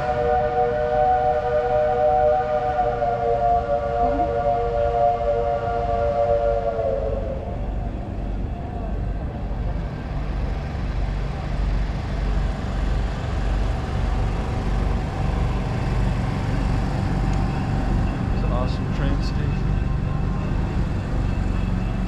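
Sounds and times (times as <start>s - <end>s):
steam locomotive chime whistle: 0.0s - 7.7s.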